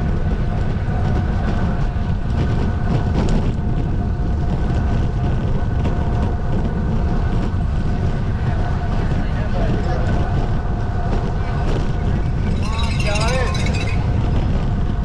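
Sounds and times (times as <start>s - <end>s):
wind buffeting microphone: 0.0s - 15.0s
faint whining tones: 9.8s - 15.0s.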